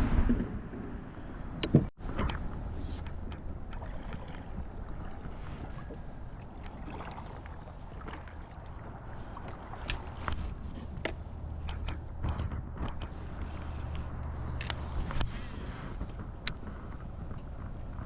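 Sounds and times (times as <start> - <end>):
river water: 0.0 - 18.0
wind noise: 0.0 - 18.0
small clicks and knocks: 9.8 - 18.0.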